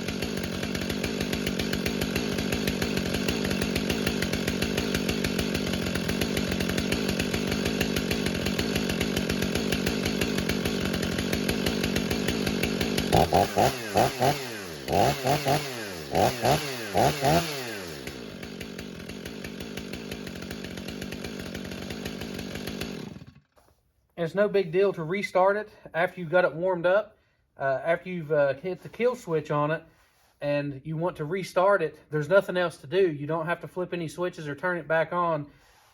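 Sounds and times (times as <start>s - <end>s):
chainsaw idling: 0.0s - 23.6s
chainsaw revving: 0.0s - 23.6s.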